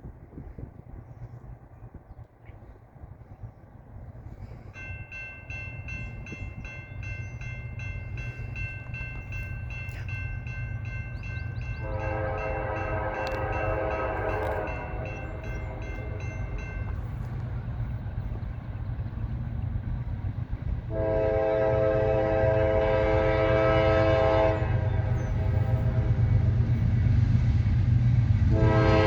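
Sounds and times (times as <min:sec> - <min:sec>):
train rumbling: 0:00.0 - 0:29.0
crossing warning bell ringing: 0:04.4 - 0:18.2
train horn blast: 0:11.7 - 0:16.5, 0:20.9 - 0:26.6, 0:28.4 - 0:29.0.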